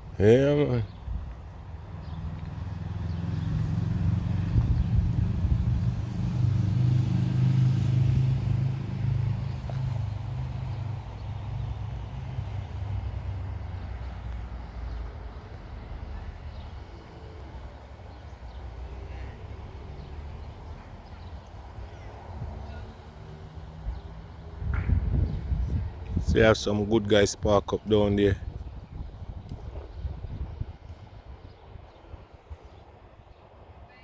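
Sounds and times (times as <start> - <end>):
vehicle engine running: 1.3 - 24.7.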